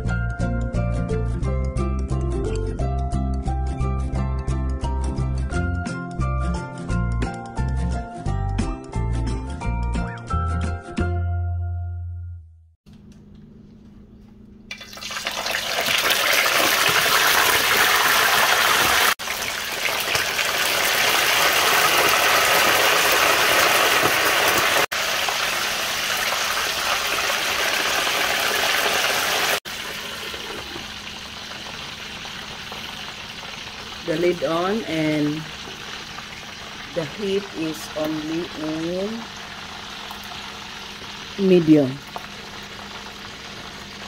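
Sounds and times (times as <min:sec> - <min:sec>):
chicken sizzling in hot oil: 0:14.7 - 0:44.0.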